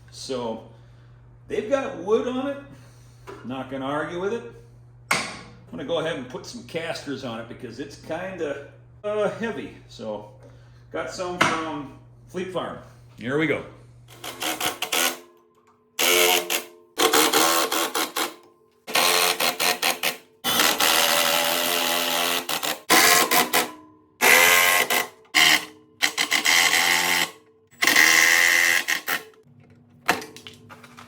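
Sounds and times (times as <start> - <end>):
power drill driving screws: 14.2 - 15.2, 16.0 - 29.3.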